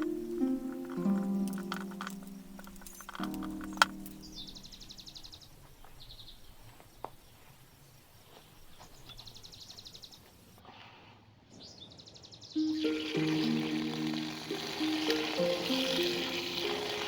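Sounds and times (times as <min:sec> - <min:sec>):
high pulsing trill call: 0:12.6 - 0:17.0.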